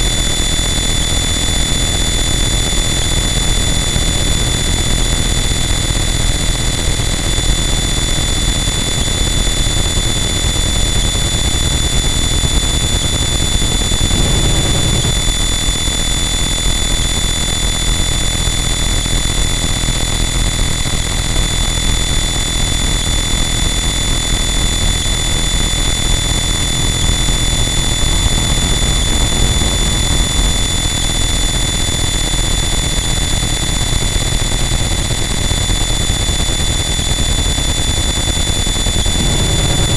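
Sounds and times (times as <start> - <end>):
high-pitched whines: 0.0 - 39.9
dense distorted noise: 23.7 - 37.0, 37.6 - 39.9.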